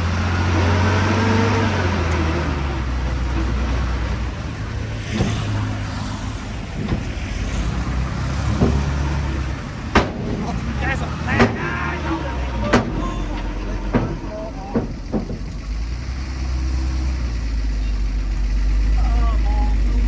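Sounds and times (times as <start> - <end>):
diesel engine of earthmover: 0.0 - 20.0
sharp knocks: 3.3 - 16.1.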